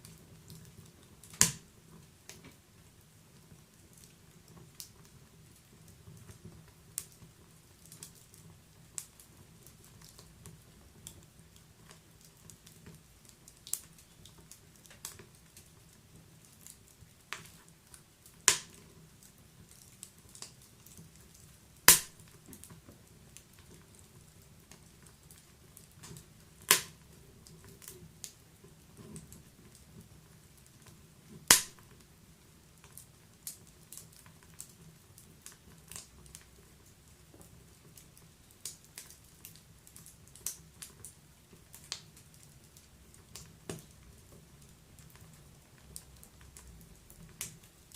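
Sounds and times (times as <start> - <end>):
wood fire crackling: 0.0 - 47.9
sharp fire pops: 1.2 - 1.7, 18.4 - 18.8, 21.8 - 22.7, 26.0 - 27.0, 31.4 - 32.0.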